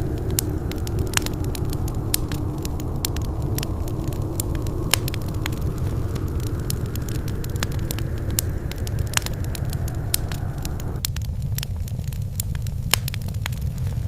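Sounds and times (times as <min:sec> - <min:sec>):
soft rushing noise: 0:00.0 - 0:11.1
wood fire crackling: 0:00.0 - 0:14.0.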